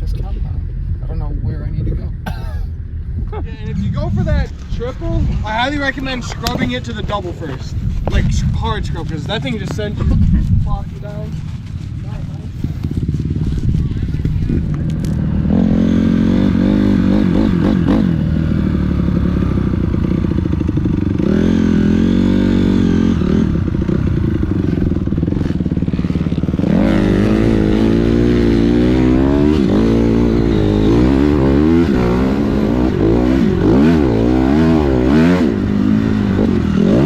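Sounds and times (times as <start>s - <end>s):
dirt bike engine revving: 12.2s - 37.0s.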